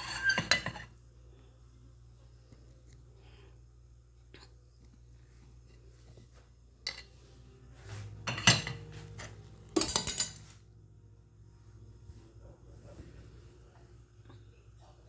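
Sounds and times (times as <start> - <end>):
cutlery and dishes clinking: 0.0 - 0.9, 6.8 - 7.2, 8.2 - 10.6.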